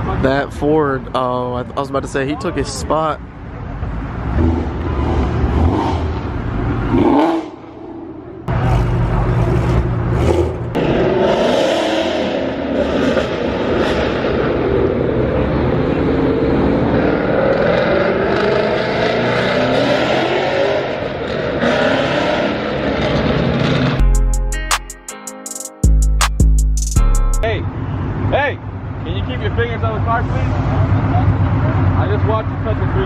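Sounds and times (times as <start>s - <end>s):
car engines revving past: 3.7s - 24.0s.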